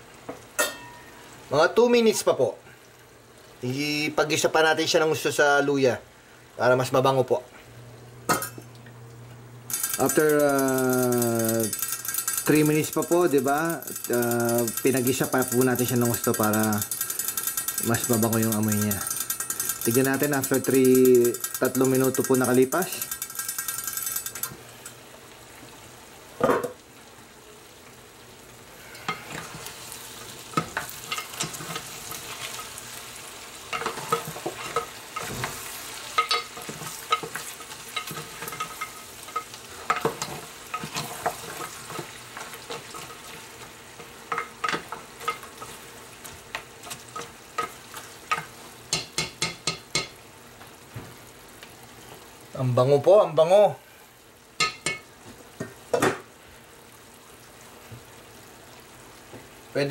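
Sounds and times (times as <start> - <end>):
meat sizzling in a pot: 0.0 - 59.9
spoon scraping a pot: 33.7 - 43.3.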